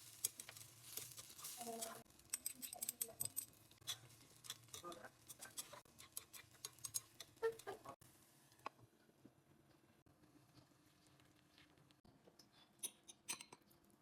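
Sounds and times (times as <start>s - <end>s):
utensils clicking against dishes: 0.1s - 8.0s.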